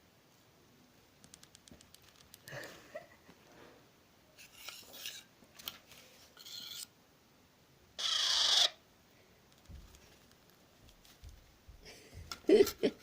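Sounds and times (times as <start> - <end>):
parakeet chick begging calls: 8.0 - 8.8.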